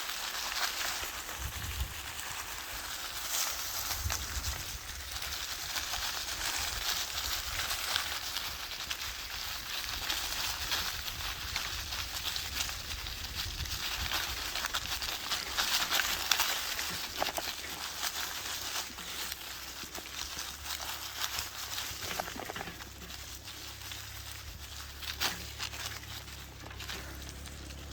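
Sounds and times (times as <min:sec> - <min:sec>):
dry leaves rustling and crackling: 0:00.0 - 0:27.9
low rumble: 0:17.8 - 0:27.9.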